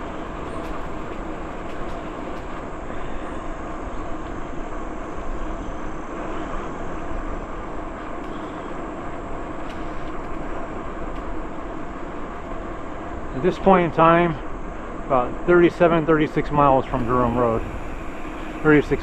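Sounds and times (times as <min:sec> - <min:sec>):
bicycle tyres rolling on trail: 0:00.0 - 0:19.0.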